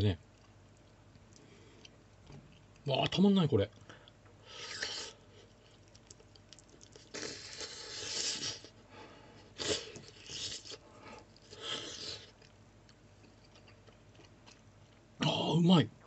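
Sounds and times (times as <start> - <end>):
close-up chewing: 4.6 - 8.8, 9.4 - 15.1.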